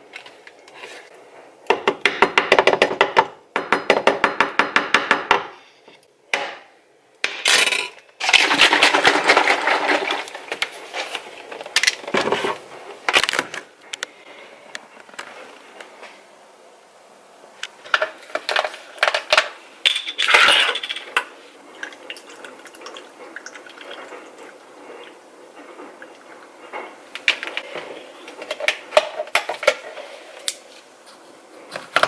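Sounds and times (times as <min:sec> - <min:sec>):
small hard objects clattering: 0:07.6 - 0:12.0.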